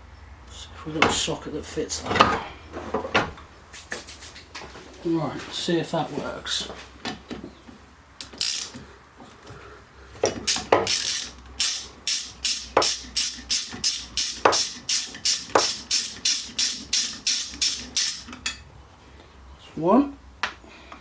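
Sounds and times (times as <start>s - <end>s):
ratchet wrench rasping: 8.2s - 8.8s, 10.3s - 18.4s.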